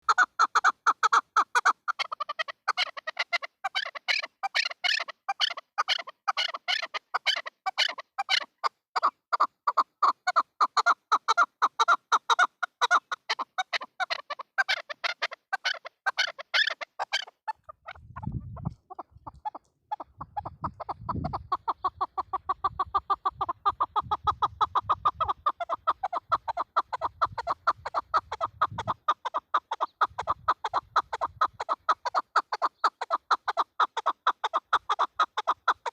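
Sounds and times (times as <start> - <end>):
partridge clucking calls: 0.0 - 35.9.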